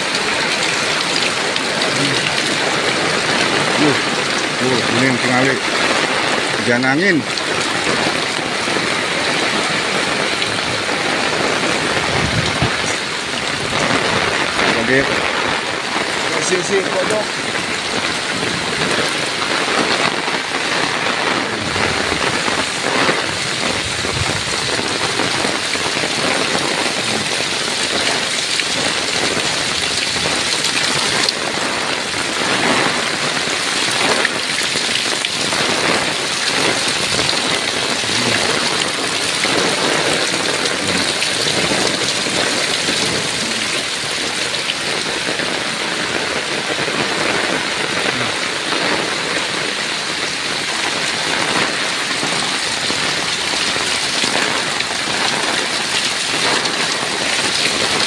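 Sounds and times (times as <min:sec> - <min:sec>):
heavy rain on tile roofs: 0:00.0 - 0:58.0.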